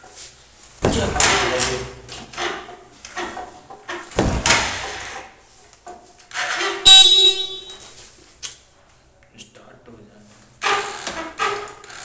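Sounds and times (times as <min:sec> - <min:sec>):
motorcycle horn beep: 0:06.8 - 0:08.0.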